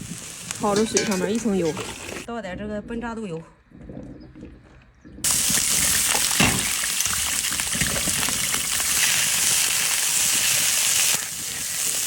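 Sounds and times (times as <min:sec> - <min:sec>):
meat sizzling in oil: 0:05.2 - 0:12.0.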